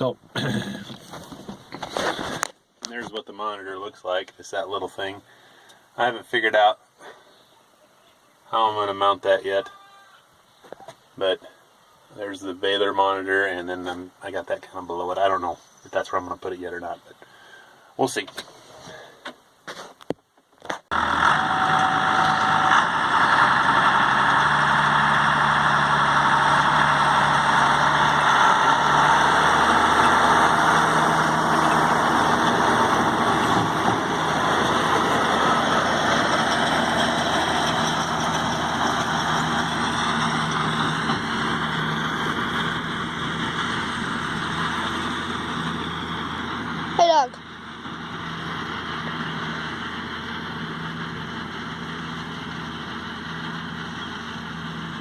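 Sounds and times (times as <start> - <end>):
tractor engine running: 20.9 - 55.0.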